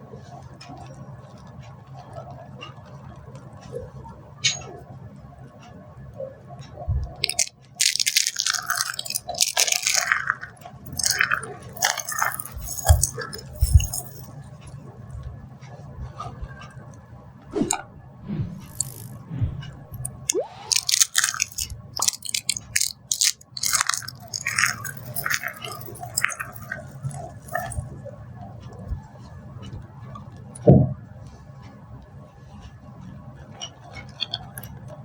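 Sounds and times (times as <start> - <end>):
dry soap crunching: 7.2 - 14.3, 20.7 - 27.8.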